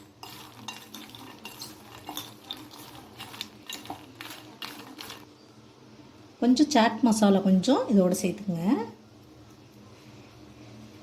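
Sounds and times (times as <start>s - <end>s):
spoon stirring in a bowl: 0.0s - 5.4s.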